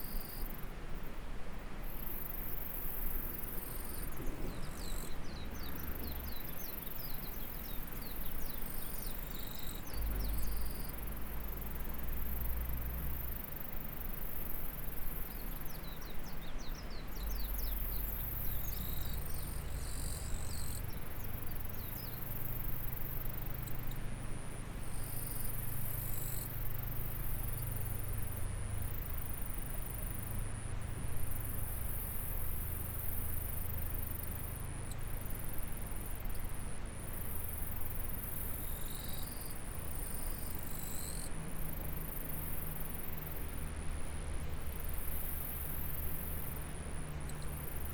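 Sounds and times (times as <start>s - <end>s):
insects trilling: 17.1s - 47.9s.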